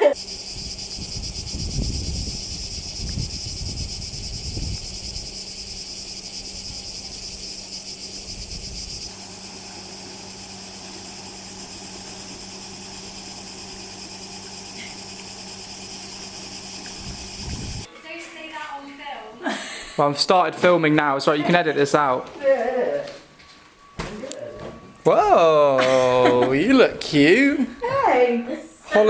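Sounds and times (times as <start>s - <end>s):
insect chorus: 0.0s - 17.9s.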